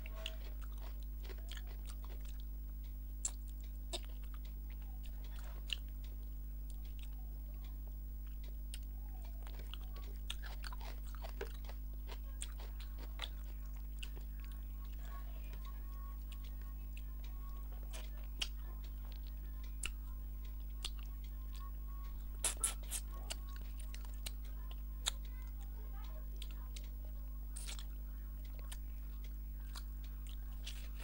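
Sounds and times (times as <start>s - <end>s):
person chewing food: 0.0s - 27.0s, 27.6s - 31.0s
steady low hum: 0.0s - 31.0s
wet mouth clicks: 22.4s - 23.4s, 27.6s - 27.9s.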